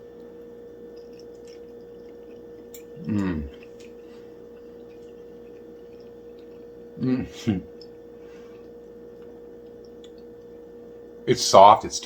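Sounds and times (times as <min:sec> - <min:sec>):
electrical hum: 0:00.0 - 0:12.0
man's short vocal sound: 0:03.0 - 0:03.5, 0:07.0 - 0:07.6.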